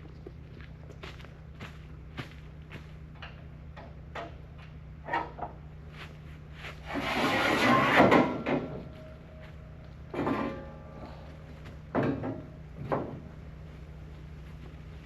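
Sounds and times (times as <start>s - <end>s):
footsteps: 0.0s - 3.0s
steady low hum: 0.0s - 15.0s
loud scraping rub: 6.6s - 8.7s.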